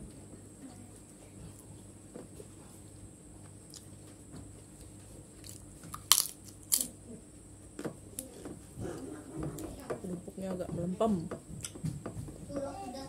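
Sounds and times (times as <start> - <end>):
cracker crunching: 4.8 - 7.0.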